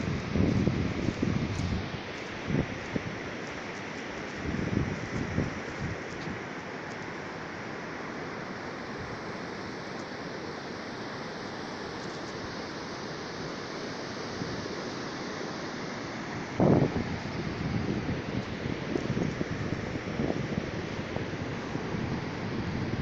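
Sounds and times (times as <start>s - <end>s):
wind on microphone: 0.0s - 3.4s, 4.2s - 6.4s, 16.4s - 23.0s
ocean surf washing: 0.0s - 23.0s.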